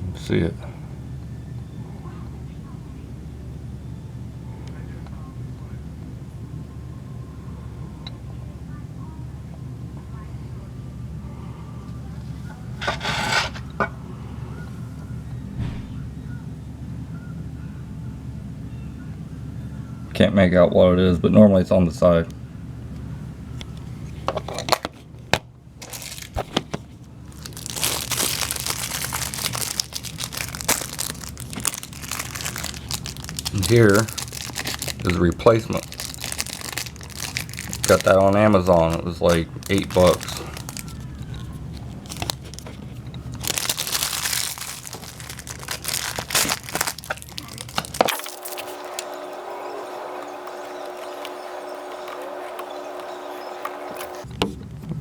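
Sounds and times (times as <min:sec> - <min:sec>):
steady hum: 0:00.0 - 0:55.0
packaging crinkling and rustling: 0:25.8 - 0:54.3.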